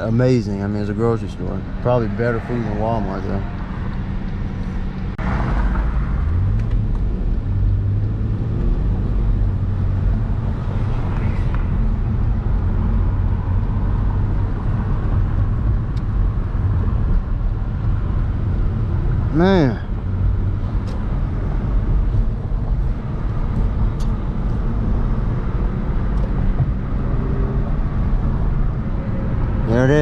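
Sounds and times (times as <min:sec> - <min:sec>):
road and tyre noise: 0:00.0 - 0:30.0.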